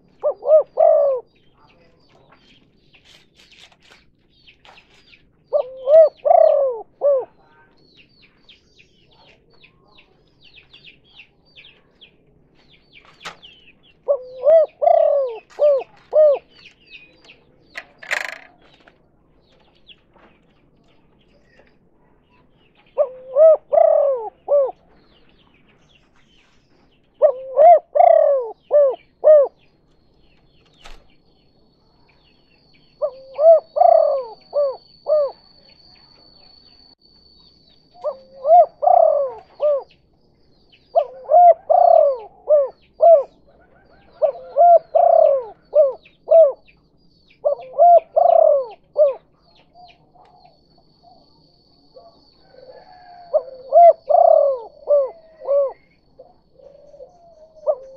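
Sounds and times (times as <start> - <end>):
dove cooing: 0.0 - 2.0, 5.4 - 7.7, 13.2 - 18.9, 21.3 - 25.2, 27.1 - 29.8, 33.0 - 36.6, 37.9 - 40.0, 40.8 - 46.8, 47.4 - 57.9.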